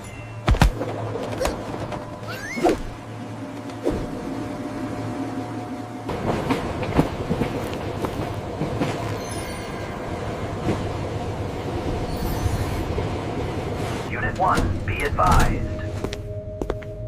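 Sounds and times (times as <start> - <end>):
train wheels clattering over track: 6.1 - 12.6.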